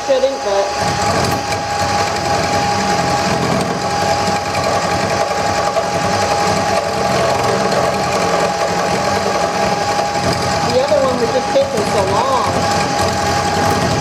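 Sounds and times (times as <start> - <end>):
wood lathe whining: 0.0 - 14.0.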